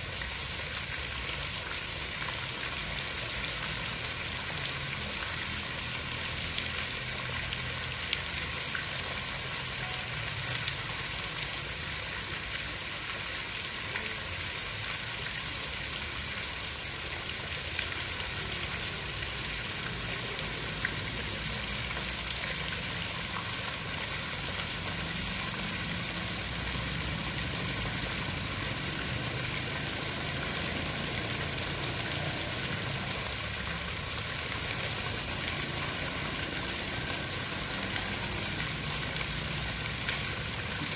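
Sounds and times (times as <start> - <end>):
steady water hiss: 0.0 - 40.9.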